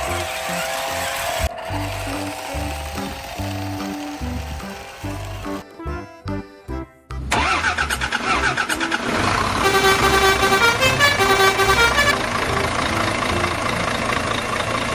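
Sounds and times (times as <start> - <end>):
vehicle engine starting and running: 0.0 - 5.8, 7.1 - 14.9
steady horn-like tone: 9.6 - 12.4.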